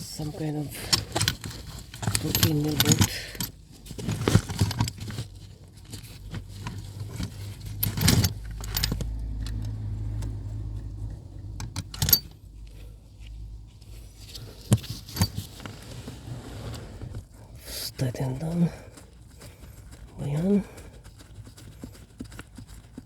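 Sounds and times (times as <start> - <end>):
metal tools clinking and rattling: 0.0 - 9.9, 11.6 - 12.5, 14.0 - 16.0.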